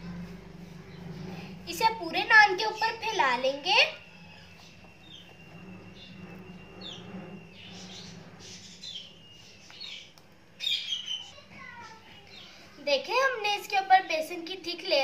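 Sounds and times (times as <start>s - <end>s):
low steady hum: 0.0s - 10.7s
small birds chirping: 0.6s - 12.8s.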